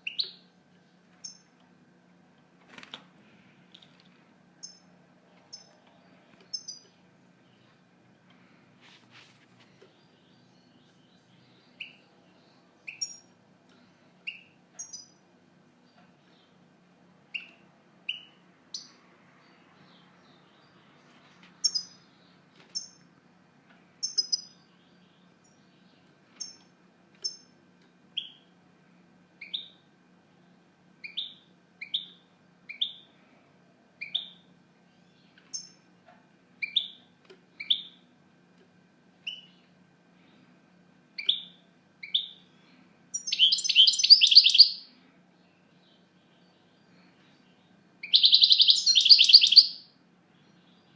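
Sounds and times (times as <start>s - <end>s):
bird chirping: 0.0s - 1.6s, 4.6s - 7.8s, 9.7s - 15.2s, 17.3s - 23.1s, 24.0s - 27.6s, 28.2s - 28.5s, 29.4s - 33.1s, 34.0s - 35.9s, 36.6s - 38.1s, 39.2s - 40.4s, 41.2s - 50.9s.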